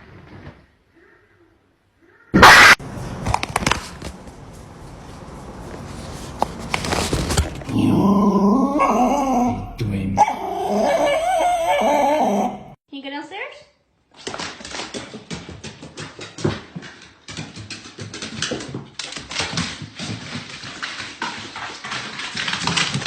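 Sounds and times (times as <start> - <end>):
sudden loud noise: 2.4 - 3.8
dog whining and yowling: 8.2 - 12.8.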